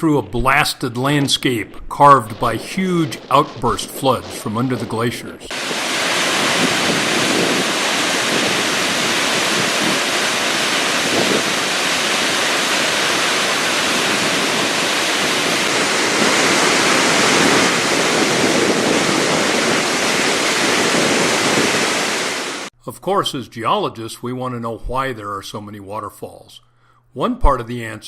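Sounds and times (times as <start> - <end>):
waterfall thundering: 0.5 - 22.7.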